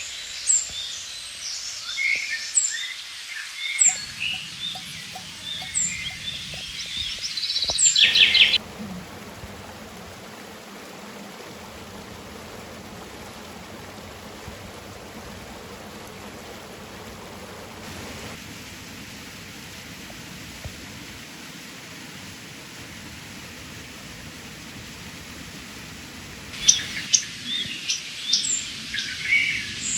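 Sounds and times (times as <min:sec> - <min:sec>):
songbirds chirping: 0:03.7 - 0:08.6, 0:26.6 - 0:27.9
bird trill: 0:03.8 - 0:08.6
river water rushing: 0:03.8 - 0:18.4.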